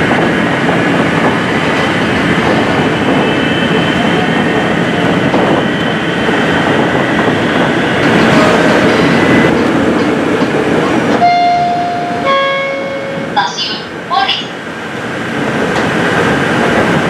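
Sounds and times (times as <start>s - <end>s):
train wheels rumbling on rail: 0.0s - 17.0s
sustained tone: 11.2s - 13.4s.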